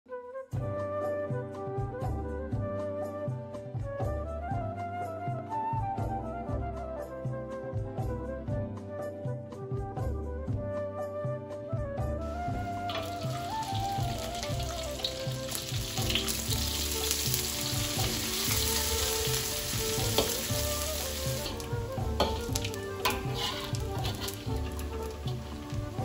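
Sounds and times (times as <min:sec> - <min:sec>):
soft background music: 0:00.1 - 0:26.0
fish sizzling in hot oil: 0:12.4 - 0:26.0
metal spatula scraping a wok: 0:12.9 - 0:13.5, 0:14.1 - 0:26.0.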